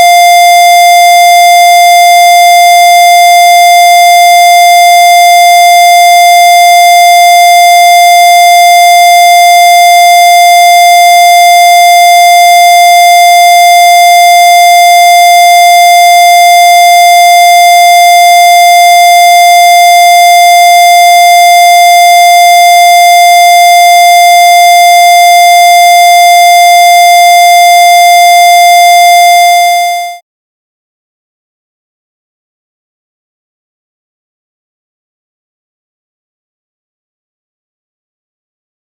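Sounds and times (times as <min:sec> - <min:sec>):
buzzy electronic tone: 0:29.2 - 0:30.2.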